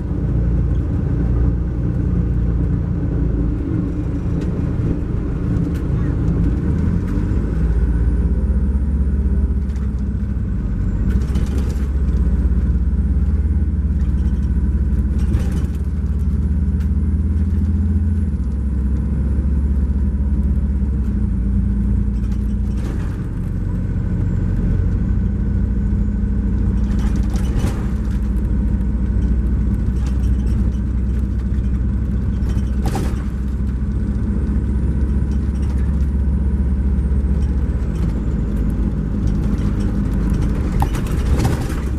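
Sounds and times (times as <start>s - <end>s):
diesel engine drone: 0.0s - 41.9s
coach body knocks and rattles: 29.3s - 34.1s.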